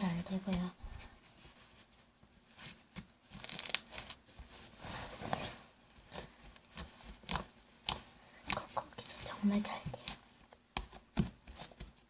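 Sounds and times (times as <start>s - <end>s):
slime being squished by hand: 6.1s - 9.2s.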